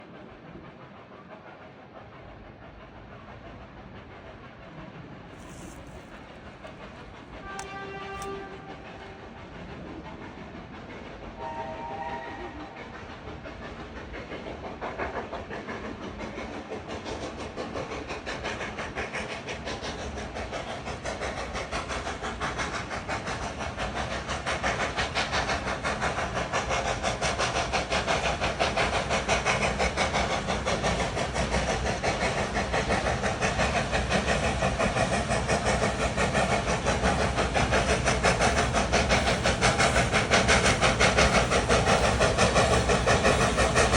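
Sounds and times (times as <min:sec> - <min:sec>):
steam locomotive exhaust beating: 0:00.0 - 0:43.9
hiss of steam: 0:09.8 - 0:43.9.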